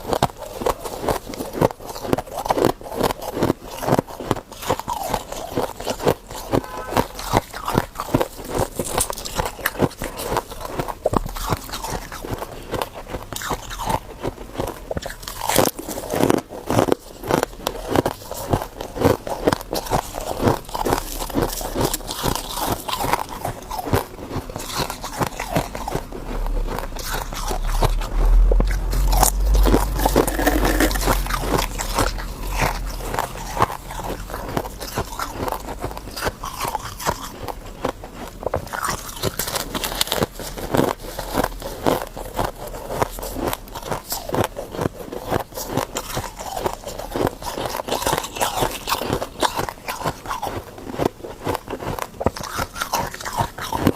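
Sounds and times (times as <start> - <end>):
person chewing ice: 0.0 - 53.9
low rumble: 25.3 - 36.2.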